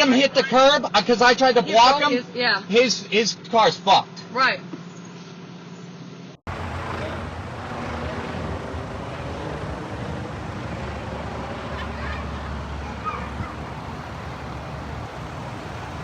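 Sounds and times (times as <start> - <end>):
vehicle rumble: 6.5 - 16.0.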